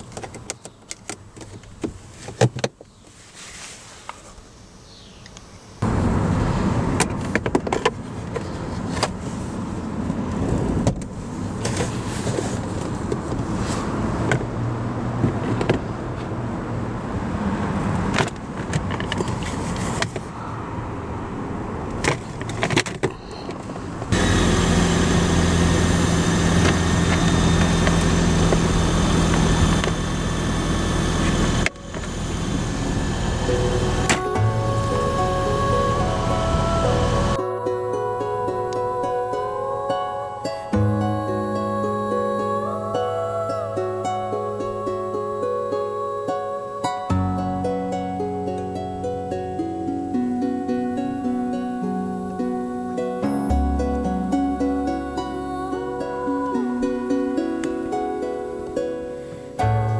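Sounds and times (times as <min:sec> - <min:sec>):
car ventilation blowing: 0:21.9 - 0:37.4
low drone: 0:24.1 - 0:46.5, 0:51.4 - 0:59.9.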